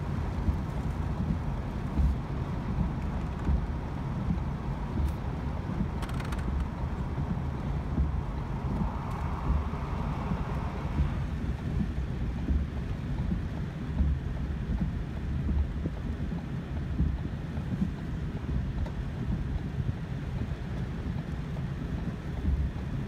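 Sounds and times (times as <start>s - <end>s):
rain on car: 0.0s - 23.0s
tyres on wet road: 0.0s - 23.0s
faint ticks: 0.5s - 7.4s.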